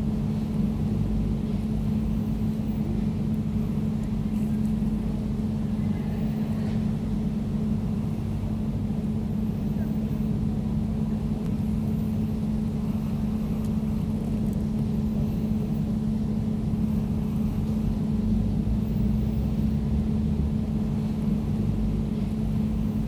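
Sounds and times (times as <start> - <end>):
air conditioner humming: 0.0 - 23.0.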